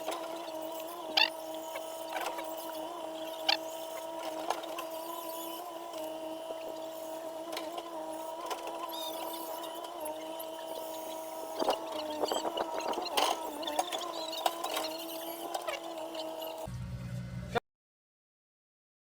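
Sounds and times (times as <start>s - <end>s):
steady mechanical hum: 0.0s - 17.6s.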